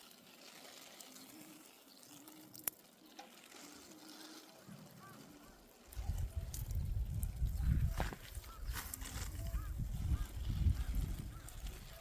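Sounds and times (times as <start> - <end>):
faint trickling water: 0.0 - 8.6.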